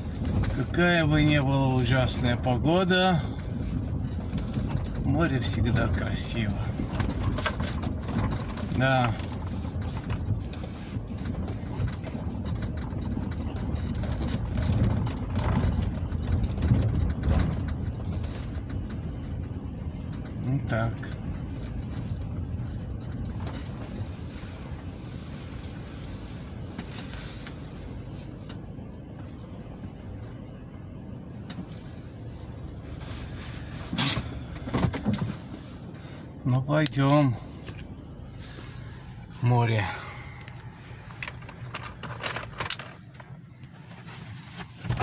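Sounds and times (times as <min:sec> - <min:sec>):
clatter or rustle: 0:00.0 - 0:29.6, 0:31.4 - 0:45.0
wind buffeting microphone: 0:03.3 - 0:20.4.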